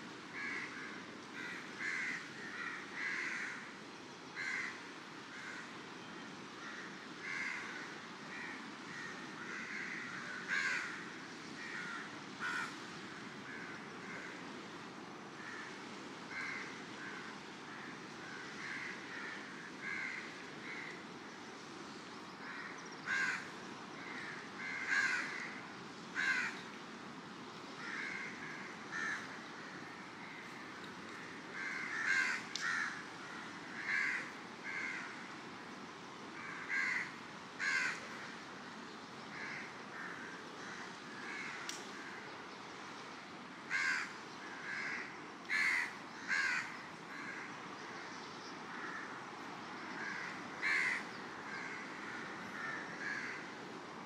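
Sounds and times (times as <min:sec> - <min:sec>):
birds calling: 0:43.7 - 0:53.5.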